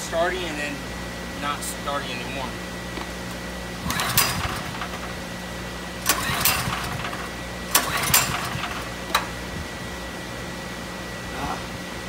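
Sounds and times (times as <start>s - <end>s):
engine cranking: 3.8s - 5.2s, 6.0s - 9.4s
generator recoil starter pulled: 3.8s - 5.2s, 6.0s - 9.4s.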